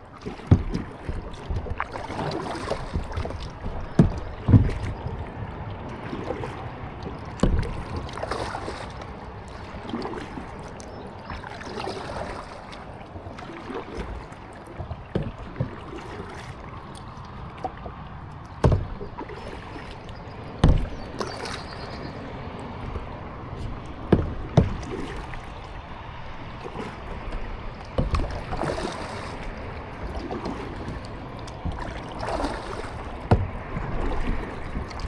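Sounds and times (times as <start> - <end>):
paddle splashing water: 0.0 - 35.0
dull thumps: 0.4 - 1.8, 2.7 - 5.3, 7.4 - 8.0, 14.8 - 15.9, 18.6 - 19.2, 20.6 - 21.2, 22.8 - 25.5, 27.9 - 28.6, 30.9 - 35.0.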